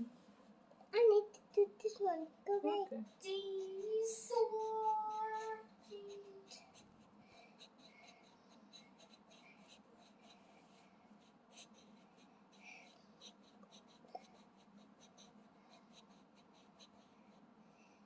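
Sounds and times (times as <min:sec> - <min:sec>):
pencil scratching on paper: 0:01.8 - 0:17.5.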